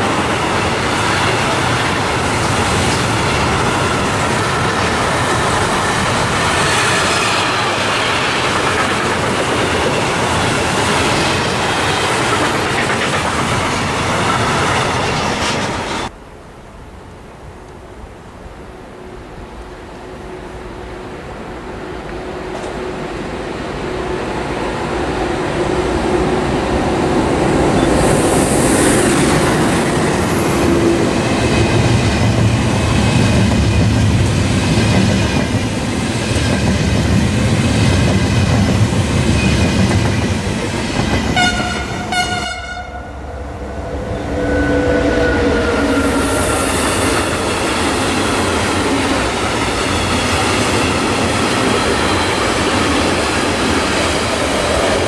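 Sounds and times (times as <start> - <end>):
train passing with rumble: 0.0 - 16.1, 19.0 - 55.0
wheels clacking over rail joints: 1.0 - 15.8
train horn blast: 41.3 - 46.6.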